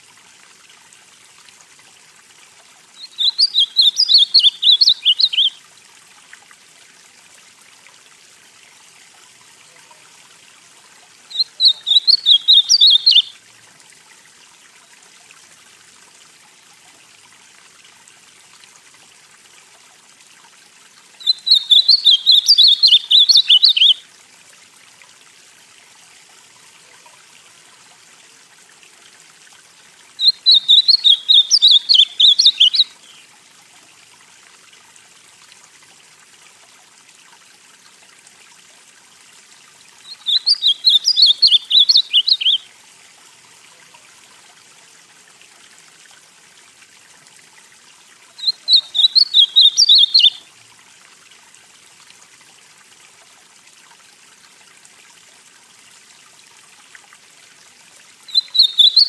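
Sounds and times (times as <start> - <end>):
faint steady hiss: 0.0 - 59.0
bird singing warbled phrases: 3.0 - 5.6, 11.3 - 13.4, 21.2 - 24.0, 30.2 - 33.2, 40.0 - 42.7, 48.4 - 50.5, 58.3 - 59.0.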